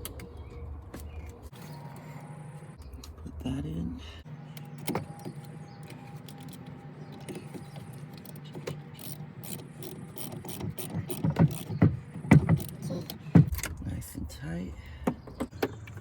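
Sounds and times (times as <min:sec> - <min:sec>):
ratchet wrench clicking: 0:08.2 - 0:13.6.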